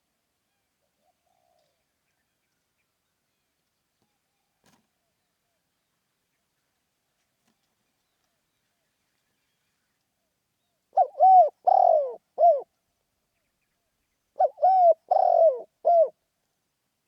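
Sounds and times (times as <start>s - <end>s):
dove cooing: 11.0s - 12.7s, 14.4s - 16.2s.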